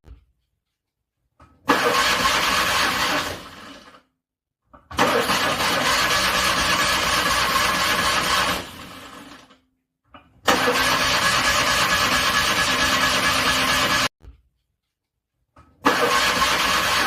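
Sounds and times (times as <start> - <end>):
car engine cranking on starter: 1.7 - 4.0, 4.9 - 9.5, 10.5 - 14.1, 15.8 - 17.0.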